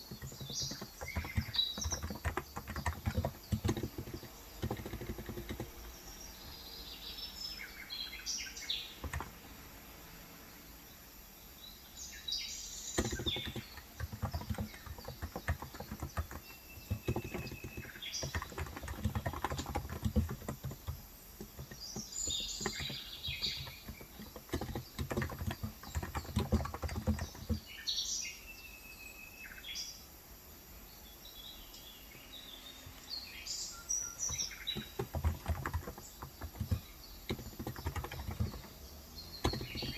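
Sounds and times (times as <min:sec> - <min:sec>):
keyboard typing clicks: 0:00.0 - 0:06.0, 0:09.0 - 0:09.4, 0:13.0 - 0:27.7, 0:34.1 - 0:39.9
birds chirping: 0:00.0 - 0:39.9.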